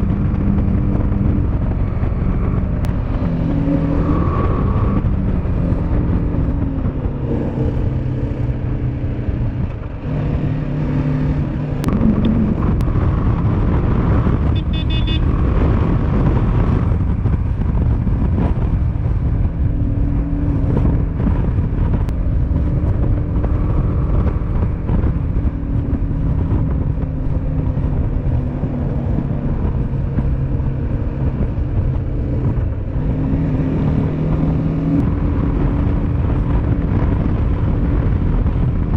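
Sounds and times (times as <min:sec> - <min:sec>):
dense rushing noise: 0:00.0 - 0:38.9
motorcycle engine running: 0:00.0 - 0:38.9.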